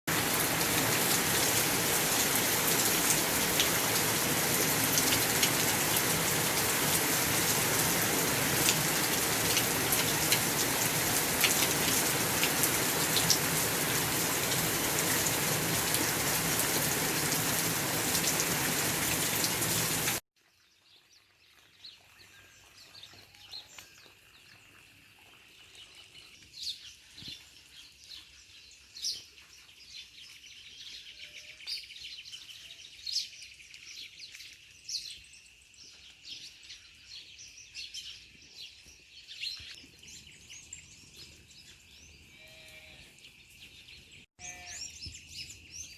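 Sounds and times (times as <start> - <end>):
heavy rain pouring: 0.1 - 20.2
sharp raindrop impacts: 0.1 - 20.2
birds chirping: 15.3 - 45.9.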